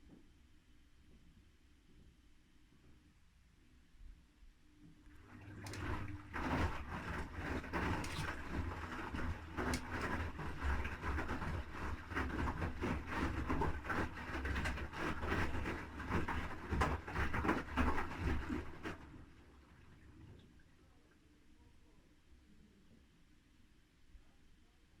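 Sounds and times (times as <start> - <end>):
washing machine motor hum: 5.1 - 20.4
wet laundry sloshing: 5.1 - 20.4.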